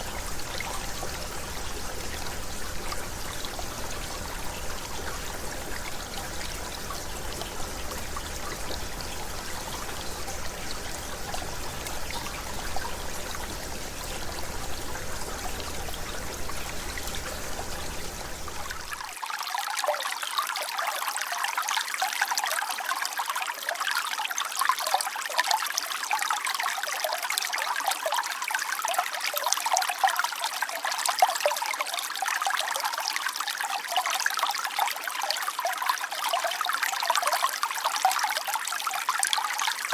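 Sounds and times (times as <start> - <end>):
river babbling over stones: 0.0 - 28.0
splashy water trickle: 0.0 - 39.9.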